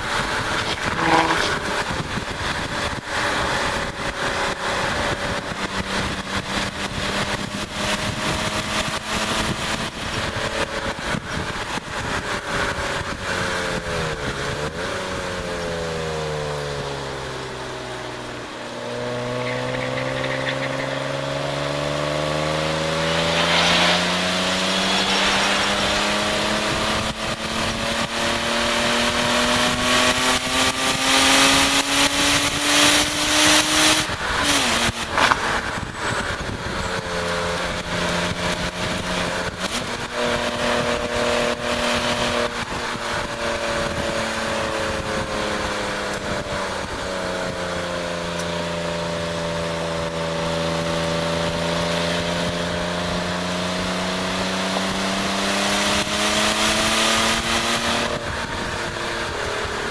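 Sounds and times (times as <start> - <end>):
wind rushing over camera: 0.0 - 14.9, 22.6 - 47.8
car engine accelerating: 0.0 - 59.9.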